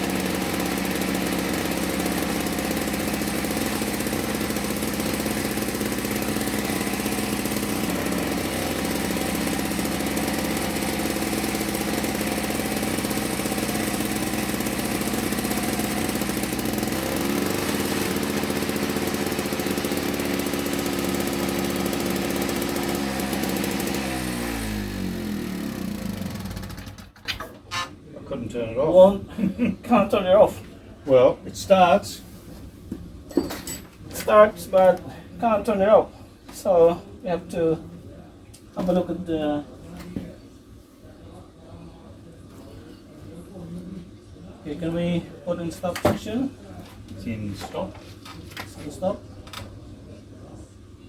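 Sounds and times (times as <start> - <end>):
two-stroke engine running: 0.0 - 27.3.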